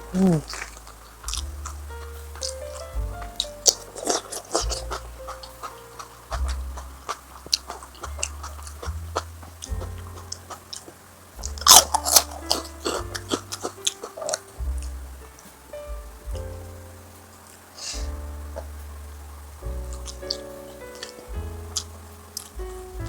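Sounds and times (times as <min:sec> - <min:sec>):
background music with bass: 0:00.0 - 0:23.0
crunchy chewing and biting: 0:00.1 - 0:02.5, 0:03.7 - 0:14.9.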